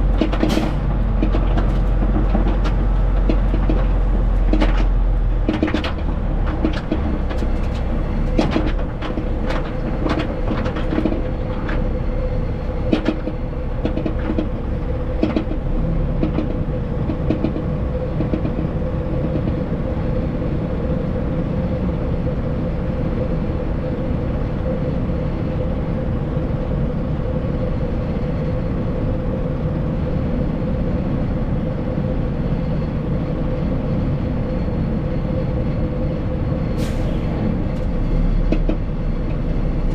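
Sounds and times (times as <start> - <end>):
truck engine and road rumble: 0.0 - 39.9
sharp clicks and knocks: 0.1 - 11.9, 12.9 - 14.6, 15.2 - 15.6, 16.2 - 19.6, 37.7 - 39.9.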